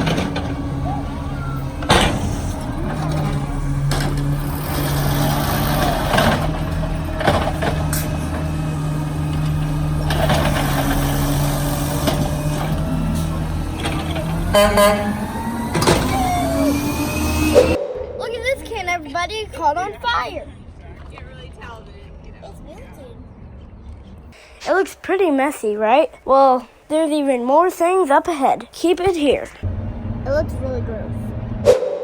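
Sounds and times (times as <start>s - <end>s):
diesel engine running: 0.0s - 17.8s, 18.4s - 31.7s
knocks and clanks: 0.0s - 18.9s.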